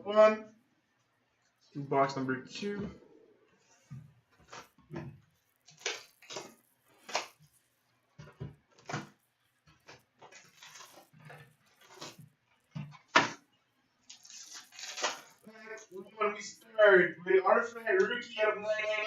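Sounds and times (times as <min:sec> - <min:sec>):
cardboard and foil crinkling: 0:04.3 - 0:13.4, 0:14.0 - 0:15.9.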